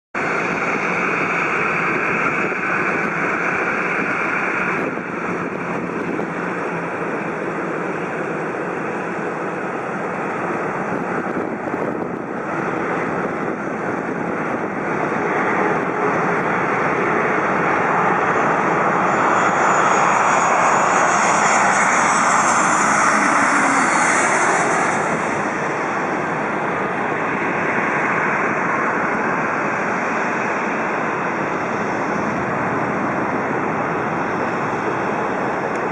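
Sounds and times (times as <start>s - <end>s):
high engine whine: 0.2s - 35.9s
jet engines roaring: 0.2s - 35.9s.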